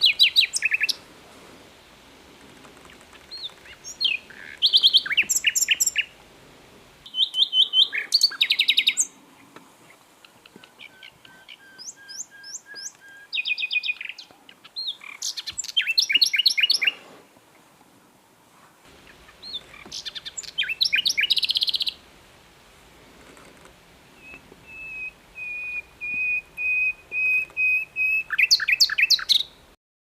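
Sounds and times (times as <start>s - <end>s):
nightingale singing: 0.0s - 1.0s, 2.8s - 6.2s, 7.0s - 17.0s, 18.9s - 22.1s, 24.0s - 29.8s.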